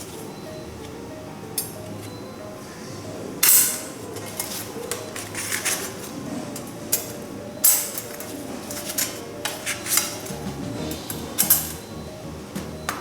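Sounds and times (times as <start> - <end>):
metal plates clinking and knocking: 3.4 - 11.8.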